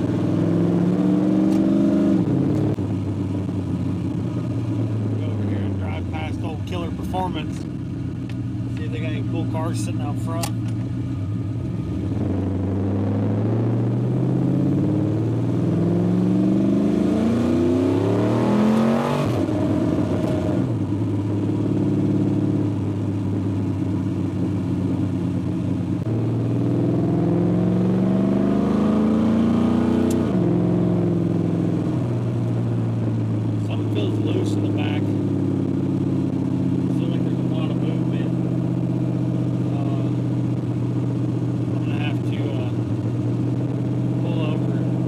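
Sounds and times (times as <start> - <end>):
truck engine revving while driving: 0.0 - 8.2, 11.3 - 45.0.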